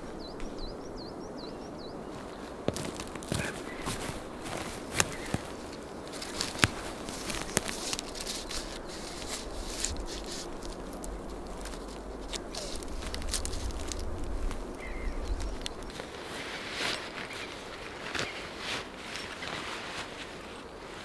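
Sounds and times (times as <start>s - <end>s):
twigs snapping: 2.1s - 18.6s
footsteps through dry undergrowth: 2.1s - 21.0s.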